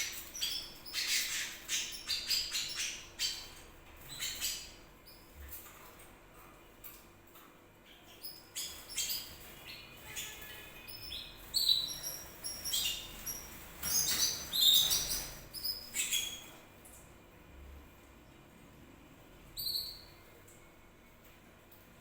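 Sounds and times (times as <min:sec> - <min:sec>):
canary singing: 0:00.0 - 0:05.3, 0:07.9 - 0:16.6, 0:19.6 - 0:20.2.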